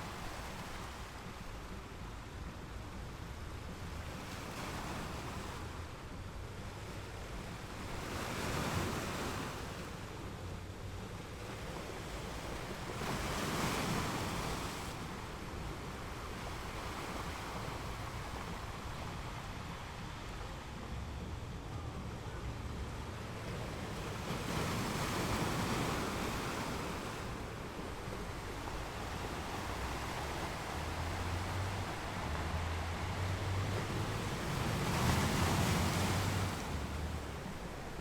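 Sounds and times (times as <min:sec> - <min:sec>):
ocean waves breaking: 0:07.8 - 0:38.0.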